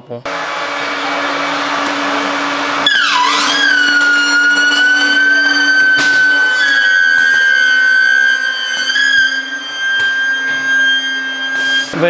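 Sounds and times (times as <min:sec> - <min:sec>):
low machine hum: 0:00.3 - 0:09.8
machine high-pitched whine: 0:00.3 - 0:12.0.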